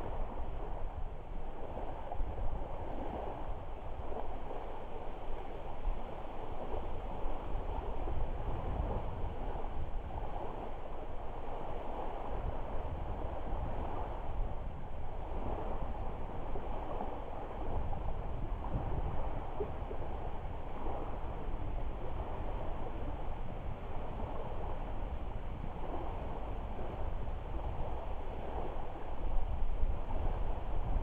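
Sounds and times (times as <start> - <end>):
wind rumble on microphone: 0.0 - 31.0
lake water lapping at shore: 15.2 - 31.0.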